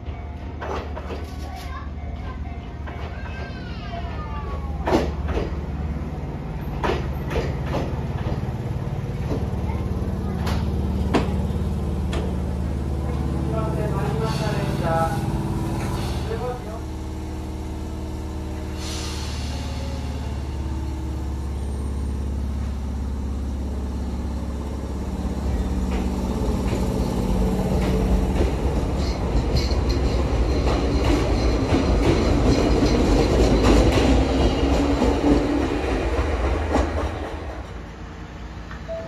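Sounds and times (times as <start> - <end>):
train motors humming: 0.0 - 39.0
wheels clacking over rail joints: 0.1 - 14.6, 24.0 - 37.8.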